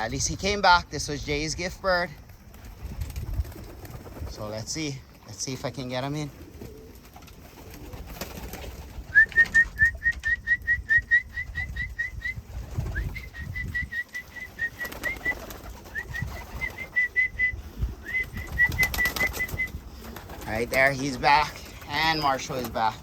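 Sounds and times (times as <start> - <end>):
person whistling chirps: 9.1 - 19.8.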